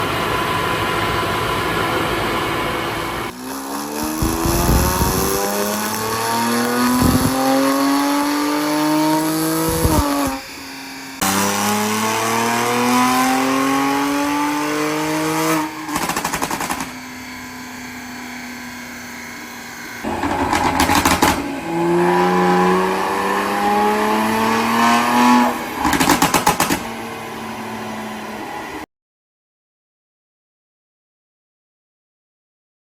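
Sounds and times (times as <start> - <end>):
car engine revving: 3.1 - 16.6, 20.0 - 26.6
exhaust pops and bangs: 4.0 - 7.5, 20.1 - 21.5, 25.8 - 26.9.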